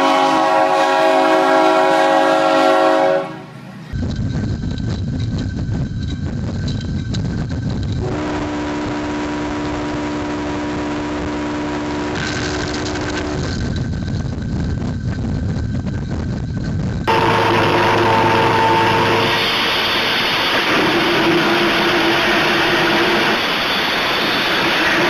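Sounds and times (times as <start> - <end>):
train horn chord: 0.0 - 3.7, 8.0 - 12.3, 17.1 - 23.6
passing train rumbling: 0.0 - 25.0.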